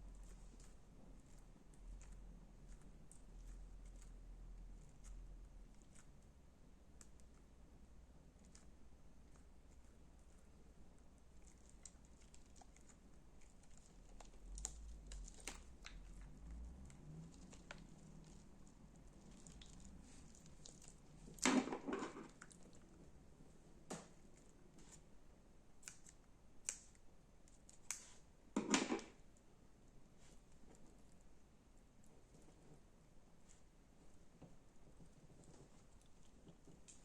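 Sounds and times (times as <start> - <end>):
slime clicking and crackling: 11.2 - 22.9, 25.8 - 28.2.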